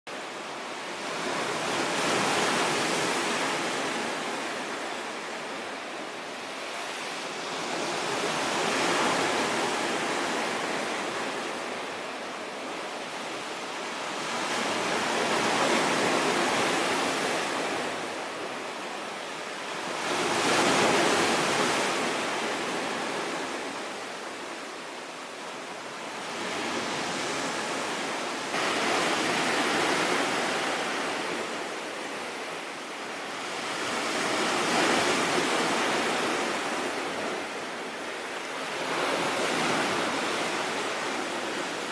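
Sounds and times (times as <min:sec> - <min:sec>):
waves breaking on shore: 0:00.1 - 0:41.9.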